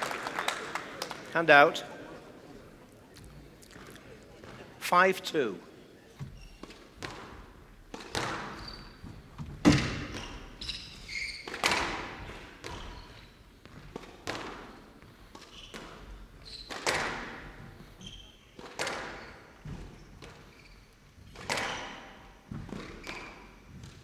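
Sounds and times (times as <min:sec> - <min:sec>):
shoes squeaking on floor: 0:01.1 - 0:24.0
squash ball hitting rackets and walls: 0:06.6 - 0:17.7, 0:18.5 - 0:20.4, 0:21.3 - 0:24.0.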